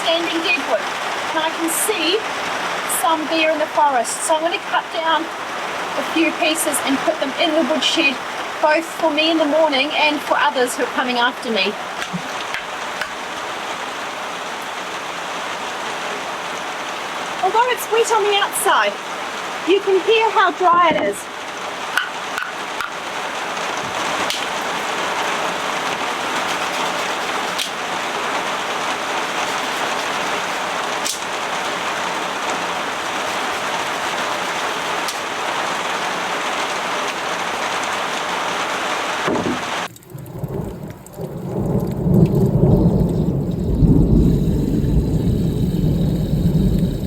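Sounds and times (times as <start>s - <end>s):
heavy rain falling: 0.0s - 47.0s
rolling thunder: 39.2s - 47.0s.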